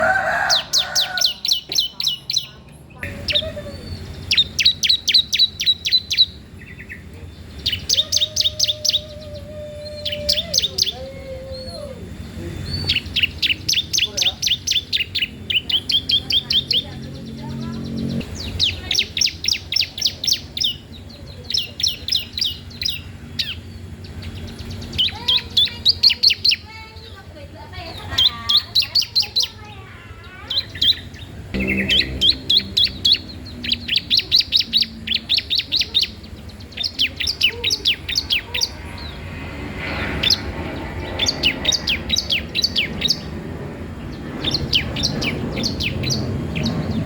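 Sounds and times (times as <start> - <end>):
songbird chirping trills: 0.0 - 47.0
faint low drawn-out note: 31.6 - 34.3.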